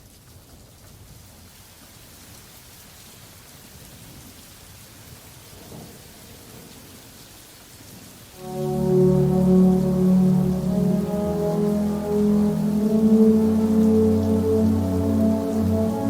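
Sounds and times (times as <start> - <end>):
loud music: 8.4 - 16.0.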